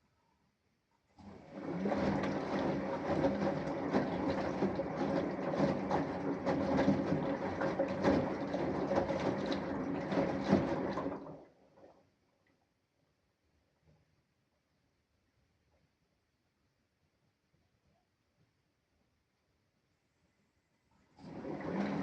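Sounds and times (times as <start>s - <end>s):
washing machine motor hum: 1.2s - 11.9s, 21.1s - 22.0s.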